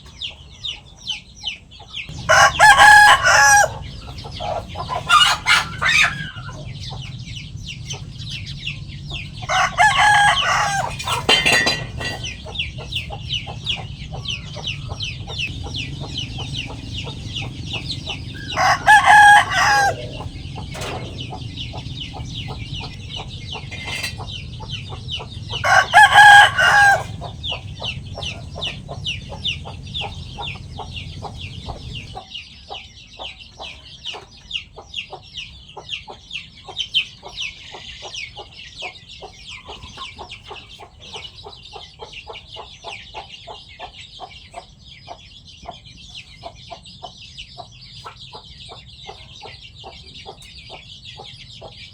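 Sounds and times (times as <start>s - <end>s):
chickens clucking: 0.0s - 51.9s
chickens pecking food: 0.1s - 32.2s
rooster crowing: 2.1s - 6.6s, 9.1s - 12.6s, 14.2s - 32.2s.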